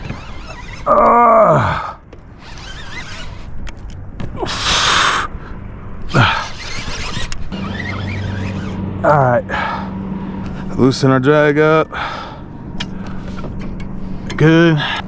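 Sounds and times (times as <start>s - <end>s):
person groaning: 0.9s - 2.0s.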